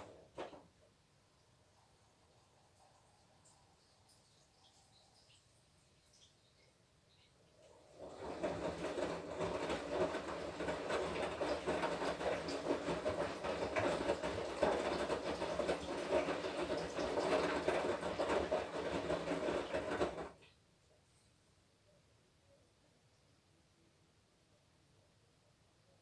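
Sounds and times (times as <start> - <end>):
washing machine humming and rattling: 0.0 - 1.0, 7.6 - 20.5.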